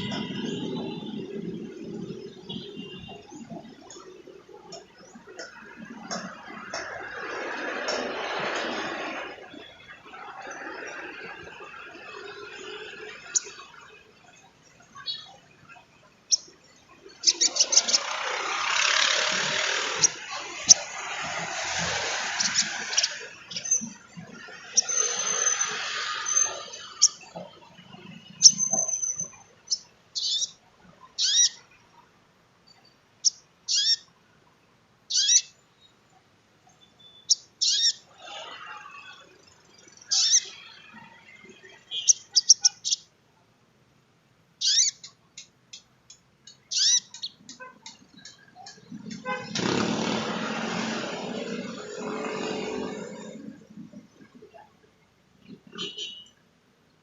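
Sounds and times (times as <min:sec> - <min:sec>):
bird chirps and trills: 0:09.0 - 0:31.8, 0:32.7 - 0:34.1, 0:35.1 - 0:36.0, 0:36.7 - 0:43.1, 0:44.6 - 0:45.2, 0:46.5 - 0:49.6
rushing noise: 0:17.1 - 0:27.2.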